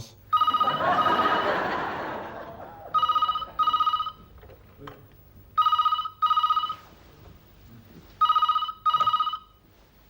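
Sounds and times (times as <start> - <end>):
telephone double ringing: 0.3 - 1.8, 2.9 - 4.3, 8.2 - 9.5.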